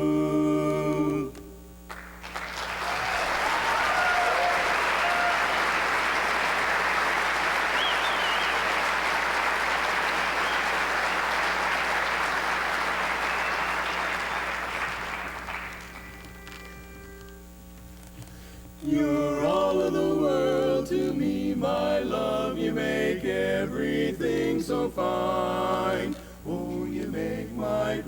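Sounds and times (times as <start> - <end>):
audience applauding: 1.9 - 17.2
short whistles: 7.6 - 9.0, 10.1 - 11.7, 13.2 - 15.0.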